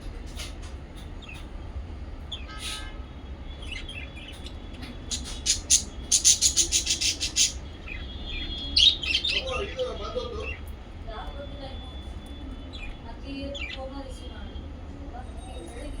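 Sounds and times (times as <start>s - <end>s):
low steady hum: 0.0s - 16.0s
parrots chirping: 3.5s - 10.7s, 11.3s - 14.6s.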